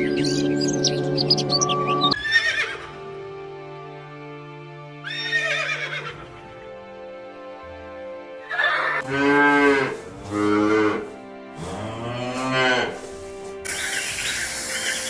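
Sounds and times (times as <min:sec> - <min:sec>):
birds chirping: 0:00.0 - 0:02.6, 0:13.6 - 0:15.0
background music: 0:00.0 - 0:15.0.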